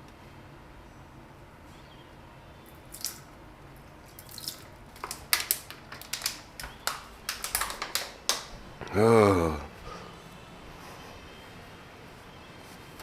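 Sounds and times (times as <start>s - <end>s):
plastic packaging clicking: 4.2s - 8.5s.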